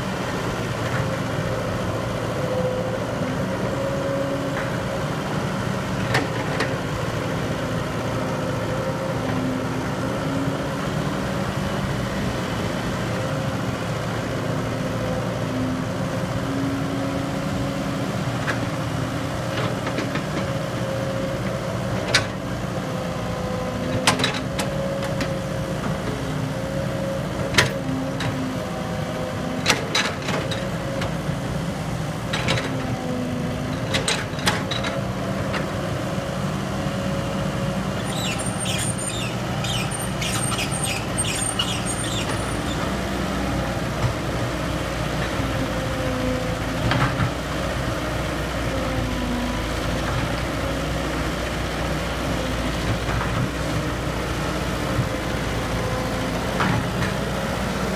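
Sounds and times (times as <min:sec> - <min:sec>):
excavator engine running: 0:00.0 - 0:57.9
quick high chirps: 0:38.1 - 0:42.6.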